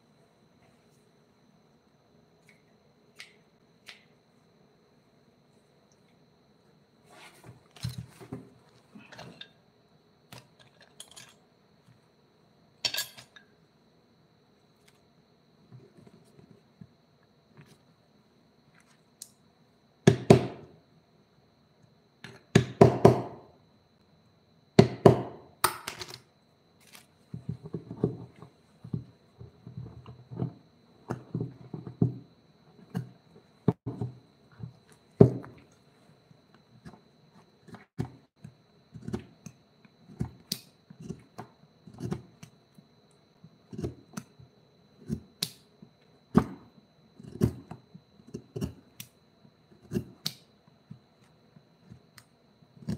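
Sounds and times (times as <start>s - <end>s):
objects knocking and clattering: 24.8s - 26.3s, 27.3s - 35.7s.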